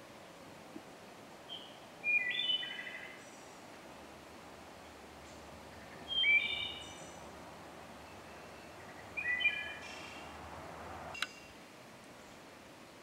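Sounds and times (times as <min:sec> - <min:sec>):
background hiss: 0:00.0 - 0:13.0
songbird whistling: 0:01.5 - 0:03.5, 0:05.8 - 0:07.2, 0:08.0 - 0:10.3
sharp click: 0:11.1 - 0:11.4.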